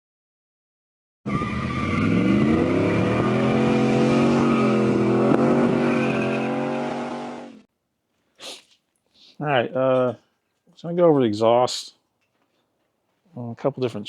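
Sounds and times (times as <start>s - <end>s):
truck engine revving: 1.3s - 7.7s.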